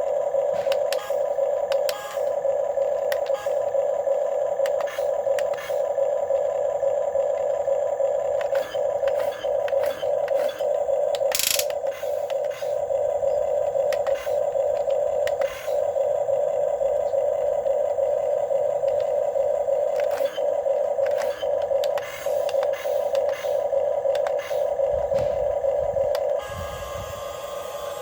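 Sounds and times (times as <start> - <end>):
electric motors whining: 0.0 - 28.0.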